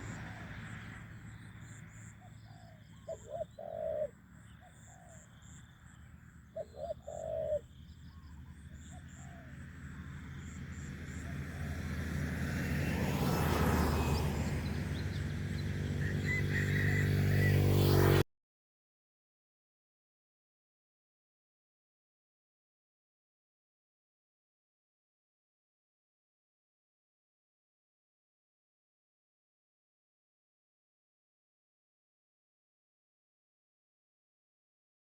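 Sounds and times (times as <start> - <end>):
vehicle engine: 0.0 - 3.1, 7.7 - 18.2
faint high bird chirps: 1.3 - 11.3
dove cooing: 2.5 - 5.2, 6.6 - 9.6.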